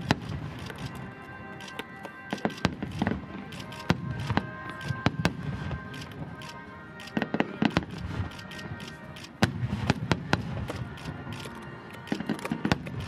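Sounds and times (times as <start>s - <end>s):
fireworks bursting with sharp bangs: 0.0s - 13.0s.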